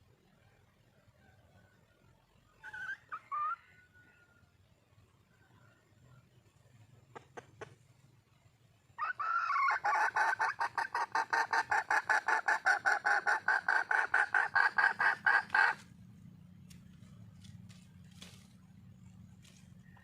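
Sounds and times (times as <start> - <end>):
hen clucking call: 9.0 - 15.9.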